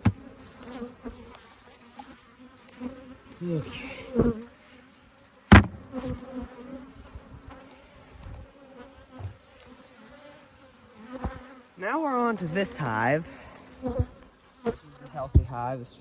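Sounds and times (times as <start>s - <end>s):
bees buzzing: 0.0s - 15.3s
knocks on hive: 5.5s - 6.2s.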